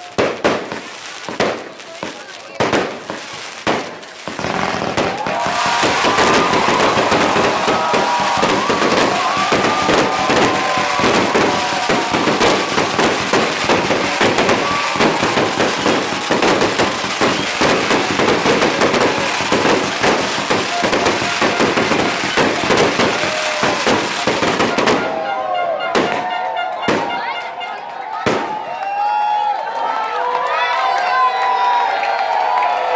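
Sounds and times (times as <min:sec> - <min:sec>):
fireworks crackling and banging: 0:00.0 - 0:29.6
firework whistles: 0:04.3 - 0:27.2.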